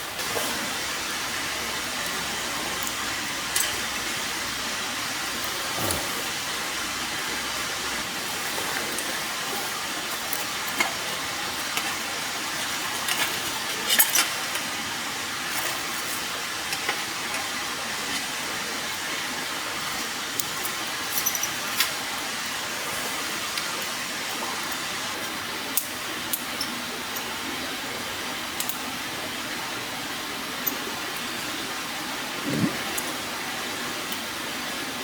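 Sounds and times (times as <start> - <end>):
fire hiss: 0.0 - 26.5.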